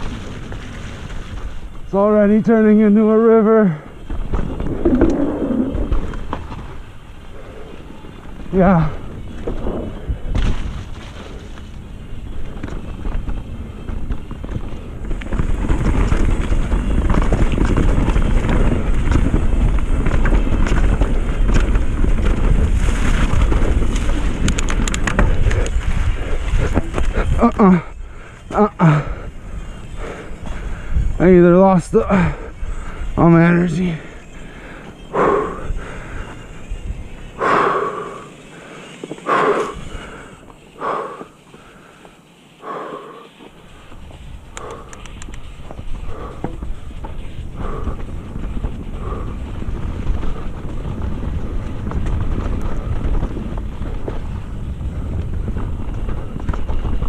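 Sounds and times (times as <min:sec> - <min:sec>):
wind rushing over microphone: 0:00.0 - 0:41.9, 0:42.6 - 0:57.0
person breathing hard: 0:25.2 - 0:31.1, 0:34.0 - 0:36.5, 0:37.4 - 0:45.3, 0:46.0 - 0:50.6.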